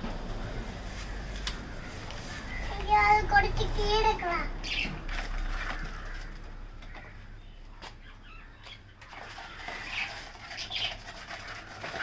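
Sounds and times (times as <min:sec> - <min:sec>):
lovebirds chirping: 0:04.1 - 0:11.8.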